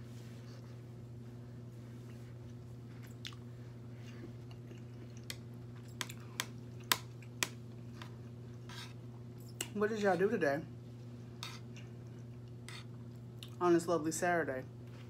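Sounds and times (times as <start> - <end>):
steady low hum: 0.0 - 15.0
chewing food: 2.1 - 8.7, 11.4 - 13.6.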